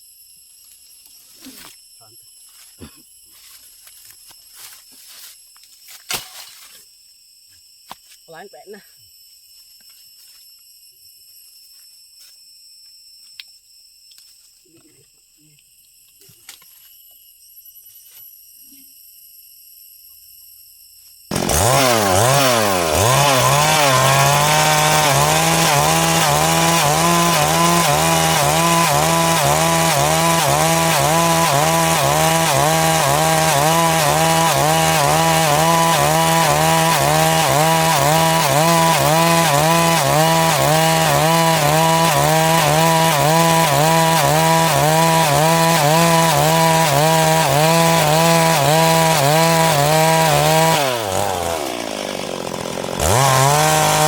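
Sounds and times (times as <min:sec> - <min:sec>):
chainsaw cutting wood: 0:21.3 - 0:54.0.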